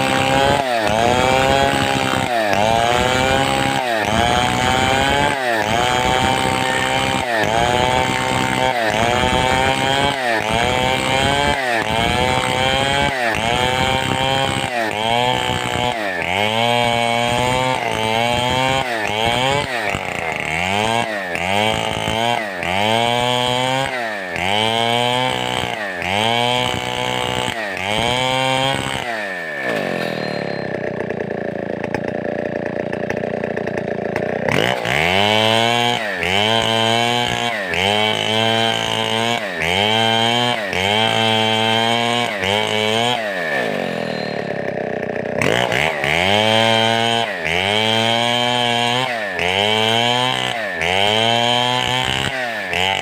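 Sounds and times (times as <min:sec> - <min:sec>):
chainsaw revving: 0:00.0 - 0:53.0.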